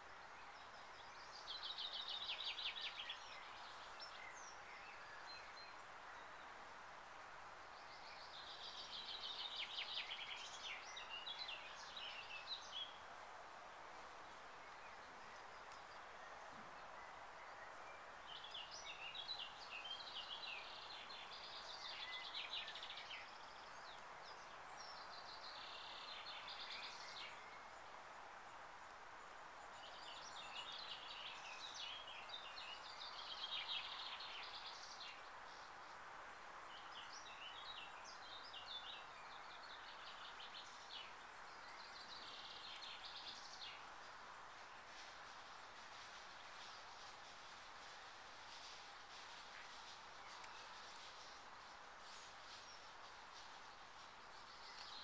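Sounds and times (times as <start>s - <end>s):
faint background hiss: 0.0s - 55.0s
songbird chirping: 0.0s - 55.0s.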